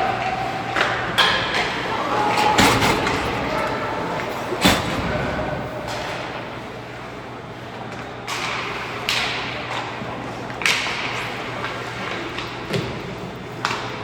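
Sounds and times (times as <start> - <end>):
hockey sticks and puck clacking: 0.0 - 6.4, 7.9 - 9.9, 10.5 - 13.0
low rink hum: 0.0 - 14.0.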